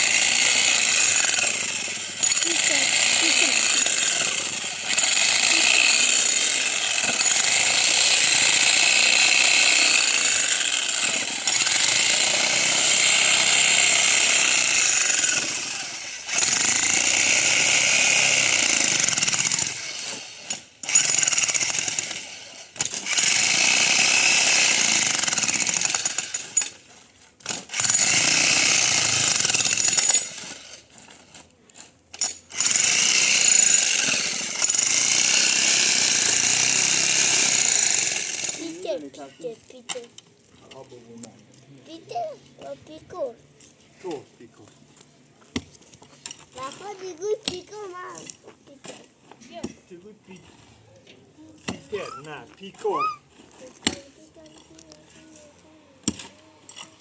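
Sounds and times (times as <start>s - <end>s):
jackhammer hammering: 0.0s - 26.8s, 27.4s - 30.8s, 32.2s - 39.0s, 46.5s - 49.9s, 53.6s - 54.9s, 56.0s - 57.0s.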